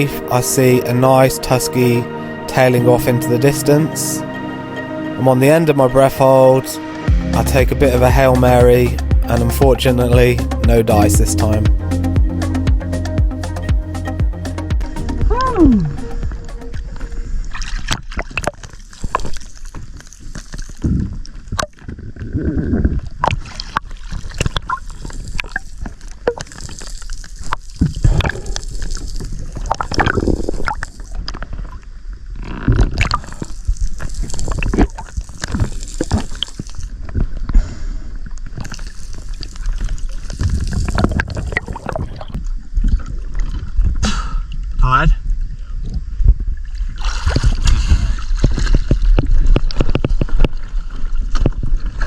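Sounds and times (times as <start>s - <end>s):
sea water sloshing and gurgling: 16.2s - 52.0s.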